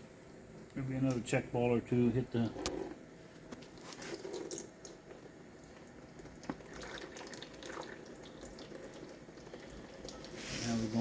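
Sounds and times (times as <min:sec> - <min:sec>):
fluid dripping: 0:03.6 - 0:10.4.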